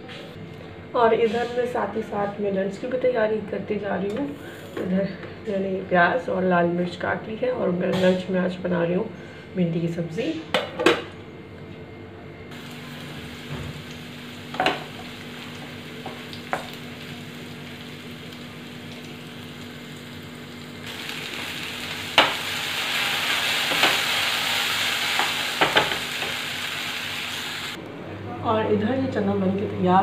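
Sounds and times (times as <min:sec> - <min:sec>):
vegetables sizzling in hot oil: 0:12.5 - 0:27.8.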